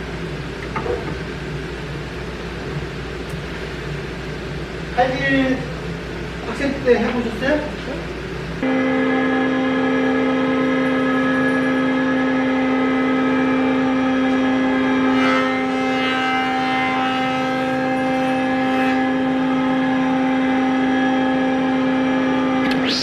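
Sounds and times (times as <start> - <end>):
machine motor humming: 7.6 - 23.0.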